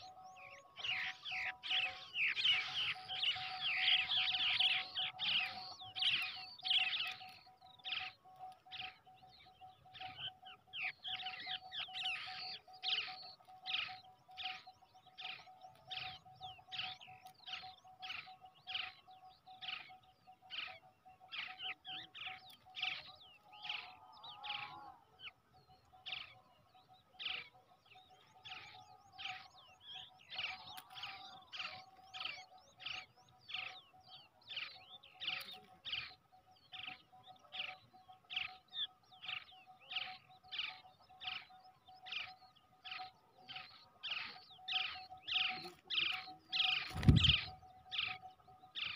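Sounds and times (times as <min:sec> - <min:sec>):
bird chicks chirping: 0:00.0 - 0:48.9
faint steady tone: 0:00.0 - 0:48.9.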